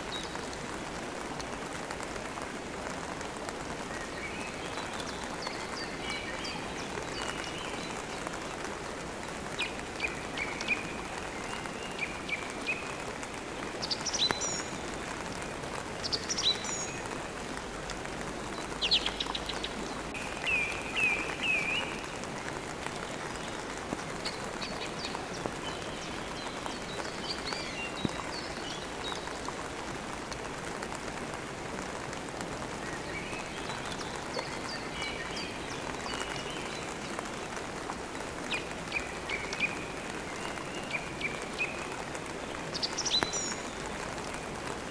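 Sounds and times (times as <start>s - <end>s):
rain hiss: 0.0s - 44.9s
small birds chirping: 18.5s - 29.5s.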